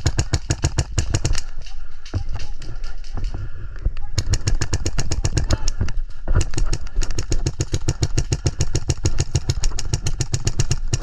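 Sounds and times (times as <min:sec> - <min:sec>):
airsoft gun full-auto bursts: 0:00.0 - 0:01.5, 0:04.2 - 0:05.7, 0:06.4 - 0:11.0.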